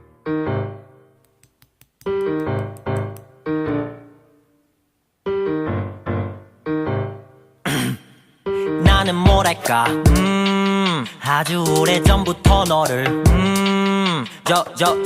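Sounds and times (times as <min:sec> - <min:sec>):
piano chords: 0:00.0 - 0:01.2, 0:02.1 - 0:07.7.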